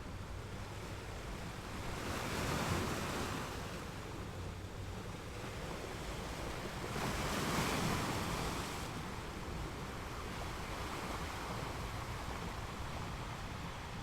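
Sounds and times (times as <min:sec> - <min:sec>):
wind rumble on microphone: 0:00.0 - 0:14.0
ocean waves washing onto beach: 0:00.1 - 0:14.0.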